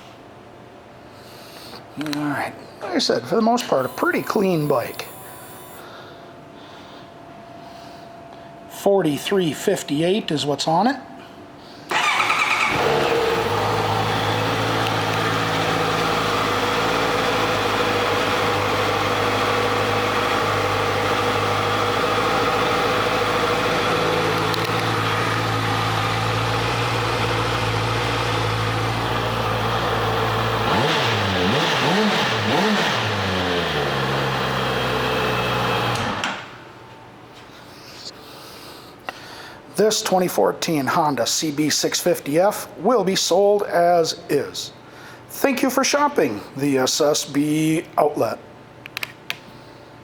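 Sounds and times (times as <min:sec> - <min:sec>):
motorcycle engine idling and revving: 0:11.9 - 0:36.2.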